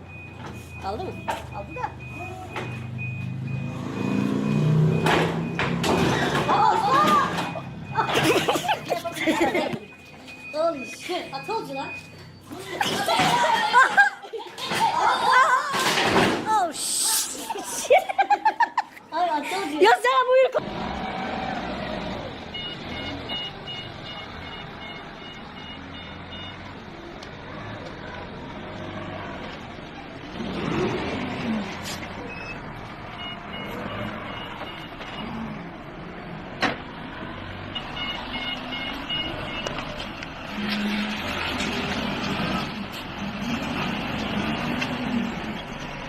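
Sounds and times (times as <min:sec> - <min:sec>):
reversing alarm beeping: 0:00.0 - 0:12.8, 0:21.9 - 0:26.9, 0:32.2 - 0:35.9, 0:37.4 - 0:41.4.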